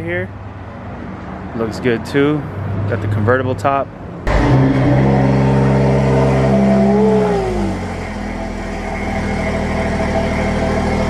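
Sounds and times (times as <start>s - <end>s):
car engine revving and idling: 4.2s - 11.0s.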